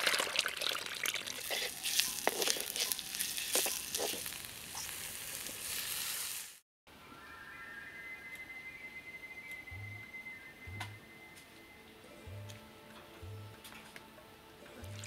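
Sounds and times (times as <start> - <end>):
onions sizzling in hot oil: 1.1 - 6.6
spoon stirring clicks and scrapes: 1.3 - 4.4.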